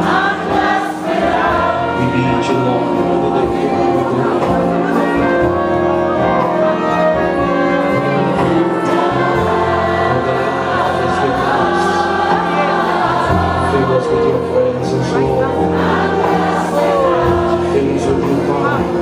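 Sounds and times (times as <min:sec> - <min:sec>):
band accompaniment: 0:00.0 - 0:19.0
choir singing gospel: 0:00.0 - 0:19.0.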